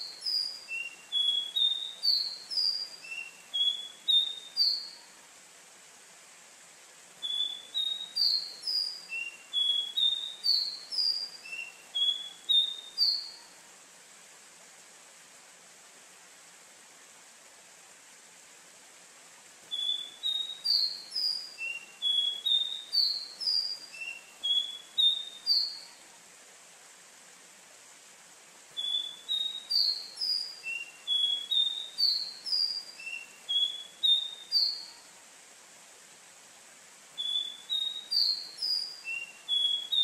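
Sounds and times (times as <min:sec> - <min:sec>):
bird singing whistled notes: 0:00.0 - 0:05.2, 0:07.2 - 0:13.5, 0:19.7 - 0:26.0, 0:28.8 - 0:35.1, 0:37.2 - 0:40.0
faint steady hiss: 0:00.0 - 0:40.0.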